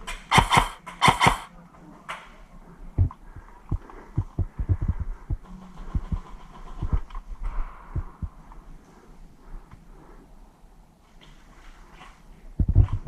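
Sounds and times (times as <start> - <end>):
faint low hum: 1.5 - 13.0
low dull thumps: 3.0 - 6.2, 7.8 - 8.4.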